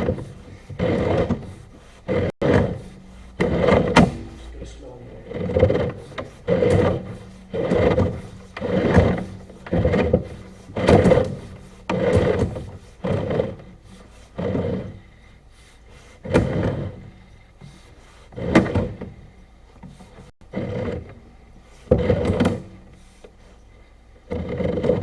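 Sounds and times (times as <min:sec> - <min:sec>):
rubbing or scraping strokes: 0:00.0 - 0:19.1.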